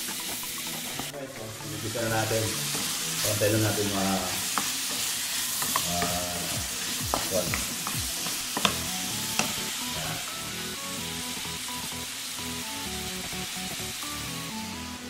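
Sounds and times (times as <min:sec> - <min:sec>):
meat sizzling in oil: 0:00.0 - 0:15.0
wooden spatula knocking pan: 0:06.9 - 0:08.8, 0:09.4 - 0:09.6.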